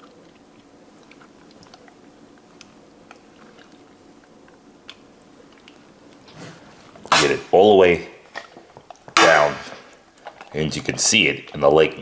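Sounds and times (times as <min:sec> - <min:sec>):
wet squishing of raw chicken: 0:00.0 - 0:07.4
low room hum: 0:00.0 - 0:12.0.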